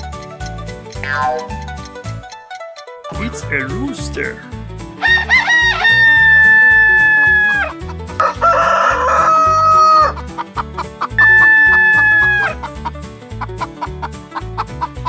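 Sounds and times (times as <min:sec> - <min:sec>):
background music with steady beat: 0:00.0 - 0:15.0
rooster crowing: 0:05.0 - 0:07.7, 0:11.2 - 0:12.6.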